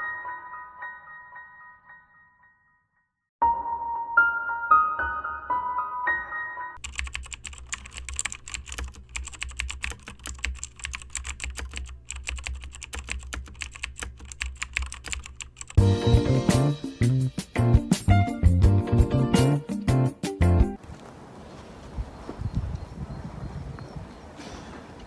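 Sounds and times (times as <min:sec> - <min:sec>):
rapid irregular clicking: 0:06.8 - 0:15.8.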